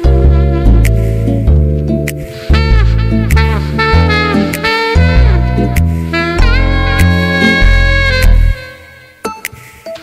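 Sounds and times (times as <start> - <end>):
saxophone playing: 0.0 - 9.3
swing backing track: 0.0 - 9.7.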